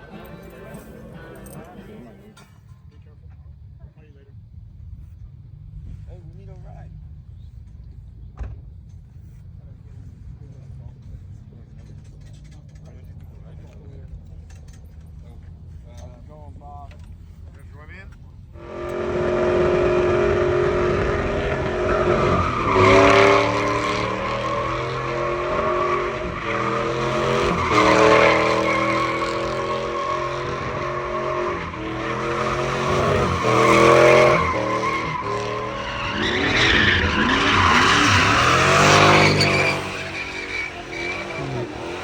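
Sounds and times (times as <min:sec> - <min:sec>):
car engine revving hard: 0:18.6 - 0:42.0.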